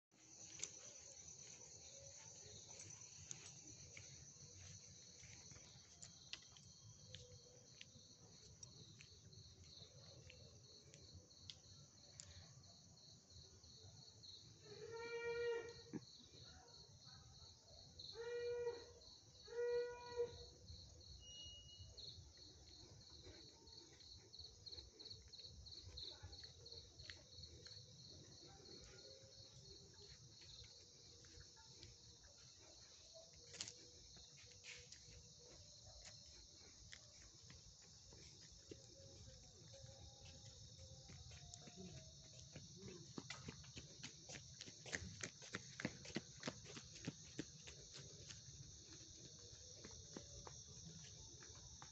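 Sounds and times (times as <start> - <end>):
crickets trilling: 0.2 - 16.8.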